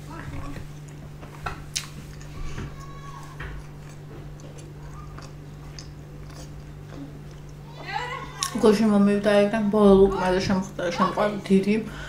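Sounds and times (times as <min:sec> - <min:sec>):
low electrical hum: 0:00.0 - 0:12.0
wet chewing and mouth clicks: 0:00.6 - 0:03.0, 0:03.6 - 0:07.7.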